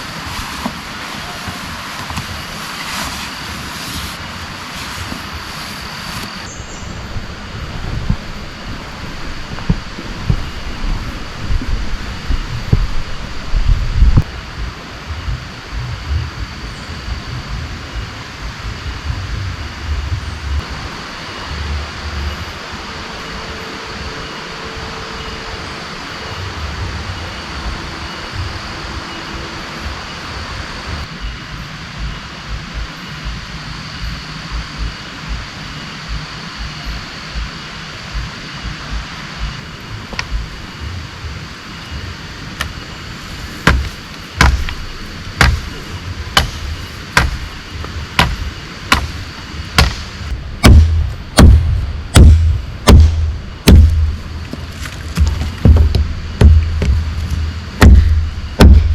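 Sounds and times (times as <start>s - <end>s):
steady rain: 0.0s - 58.9s
sharp knocks: 43.6s - 45.8s, 46.4s - 47.6s, 48.2s - 49.2s, 49.8s - 54.6s, 55.2s - 58.9s.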